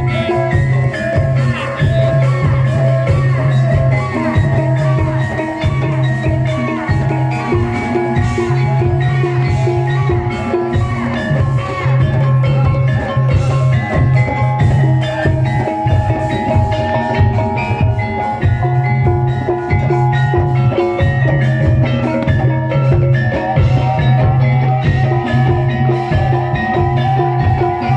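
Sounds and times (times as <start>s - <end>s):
drums beating fast pattern: 0.0s - 27.9s
metallophones playing melody: 0.0s - 27.9s.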